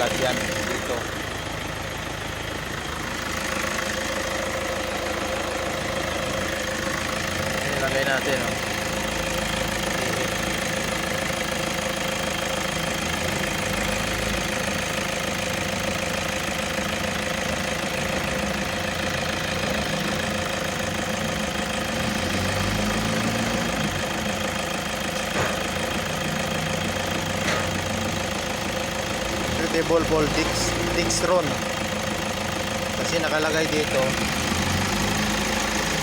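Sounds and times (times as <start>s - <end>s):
car engine idling with whine: 0.0s - 36.0s.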